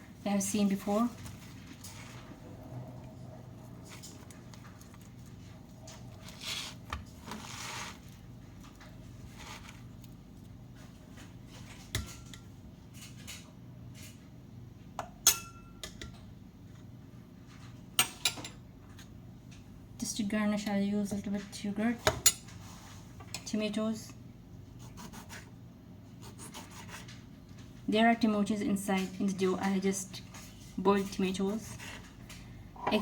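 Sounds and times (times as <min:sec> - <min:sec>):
steady low hum: 0:00.0 - 0:33.0
scraping rustle of utensils: 0:01.1 - 0:02.4, 0:03.8 - 0:10.0.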